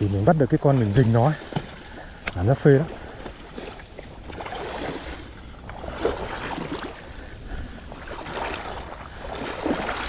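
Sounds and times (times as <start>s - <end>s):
water sloshing around wading legs: 0.0s - 10.0s.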